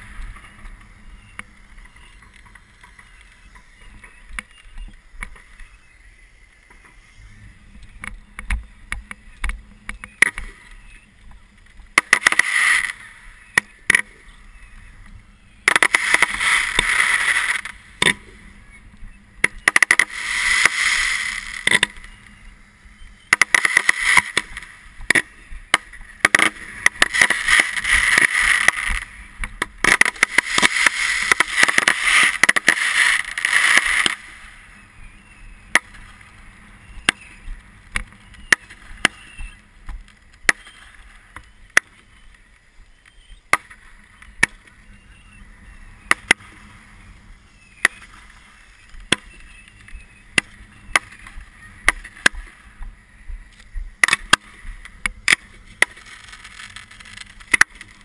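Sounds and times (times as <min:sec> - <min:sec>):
firework cracks and pops: 0:08.0 - 0:10.8, 0:11.7 - 0:14.2, 0:15.6 - 0:18.4, 0:19.4 - 0:22.2, 0:23.2 - 0:34.6, 0:37.0 - 0:44.8, 0:47.7 - 0:52.7, 0:53.6 - 0:58.0
fireworks hissing and fizzing: 0:12.0 - 0:13.5, 0:15.7 - 0:18.0, 0:19.6 - 0:22.1, 0:23.4 - 0:25.0, 0:25.8 - 0:34.7, 0:55.7 - 0:58.0.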